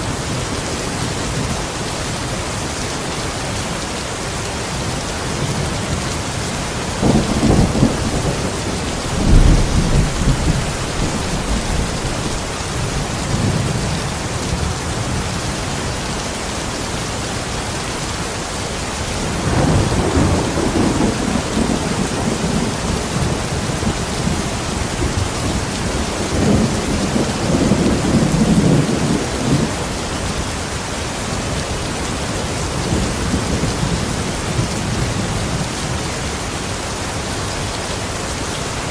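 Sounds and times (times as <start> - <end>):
steady rain: 0.0 - 38.9
low thunder rumbling: 6.9 - 15.4, 19.3 - 29.9.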